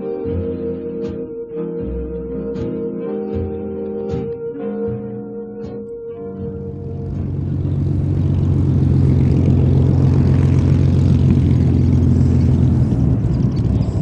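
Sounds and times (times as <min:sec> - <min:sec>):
propeller plane engine running: 0:06.6 - 0:14.0.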